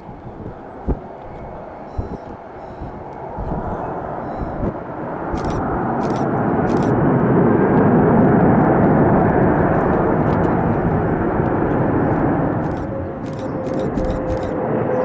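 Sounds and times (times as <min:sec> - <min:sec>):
faint steady whine: 0:00.0 - 0:07.0
jet engines roaring: 0:00.0 - 0:15.0.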